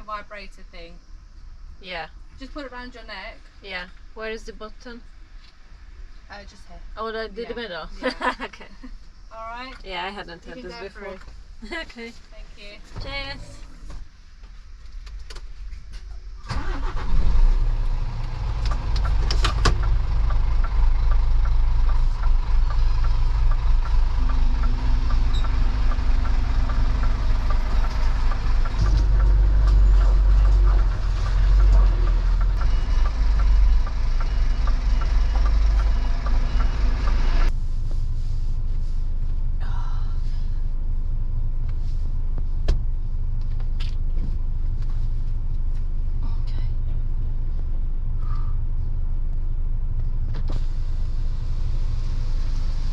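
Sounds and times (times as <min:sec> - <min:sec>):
diesel engine starting and running: 0:15.4 - 0:52.9.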